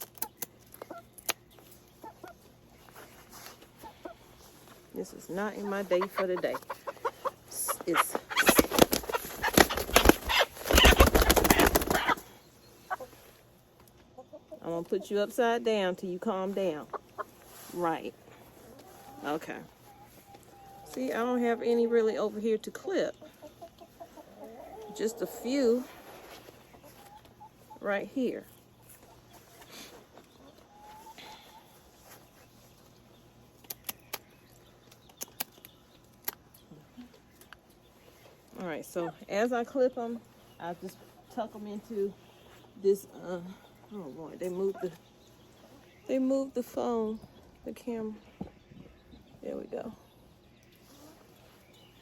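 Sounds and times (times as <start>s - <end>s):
hen flapping wings: 8.0s - 12.3s.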